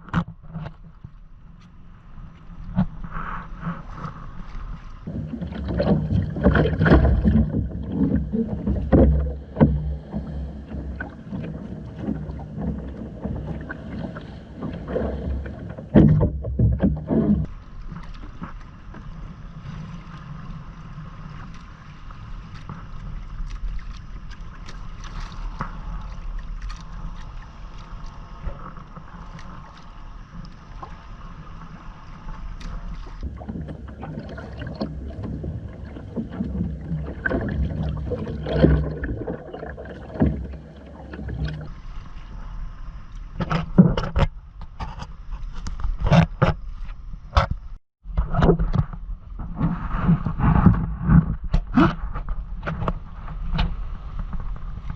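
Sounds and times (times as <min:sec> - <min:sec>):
water rushing along a hull: 0:00.0 - 0:54.9
uneven knocks and bumps: 0:05.1 - 0:17.5.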